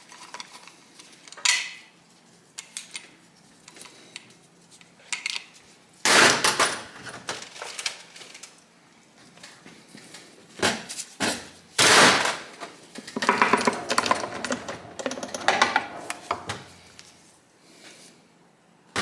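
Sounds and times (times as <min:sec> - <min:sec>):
metal parts and tools clinking: 0:13.1 - 0:16.6.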